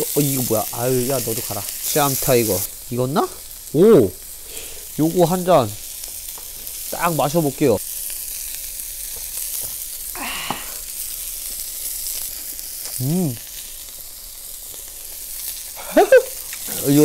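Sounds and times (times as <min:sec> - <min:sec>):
pork sizzling: 0:00.0 - 0:17.0
person exclaiming: 0:10.2 - 0:10.8, 0:13.0 - 0:13.4, 0:15.8 - 0:17.0.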